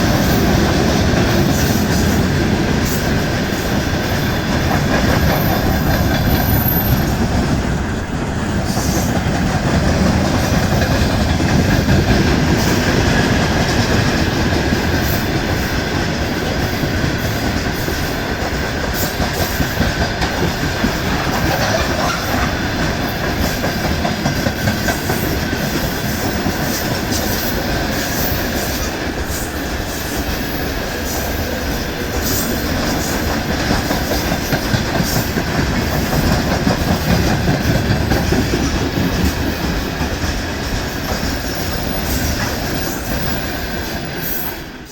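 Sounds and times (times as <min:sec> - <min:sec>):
freight train rumble: 0:00.0 - 0:44.9.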